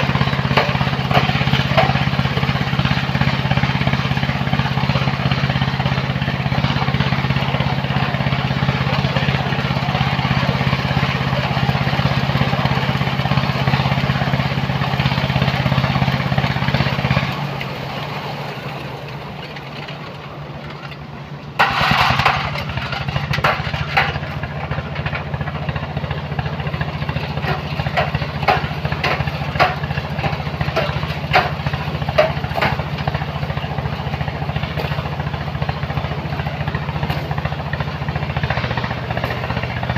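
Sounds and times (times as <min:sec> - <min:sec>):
diesel engine running: 0:00.0 - 0:39.9
clattering knocks: 0:27.3 - 0:33.2.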